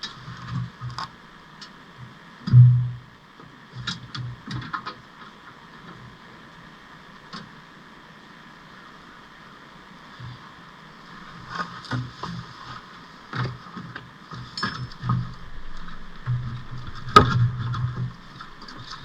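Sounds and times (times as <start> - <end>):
background hum: 8.7 - 19.0.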